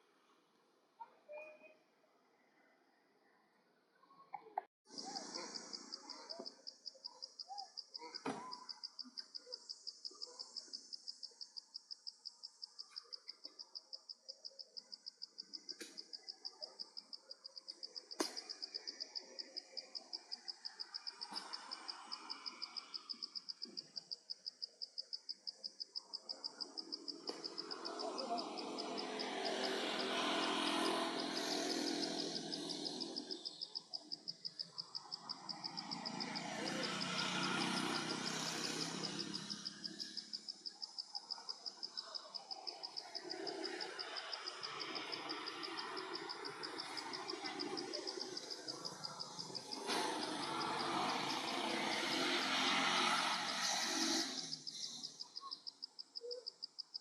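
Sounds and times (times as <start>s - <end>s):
insect calling in short high pulses: 15.5s - 56.9s.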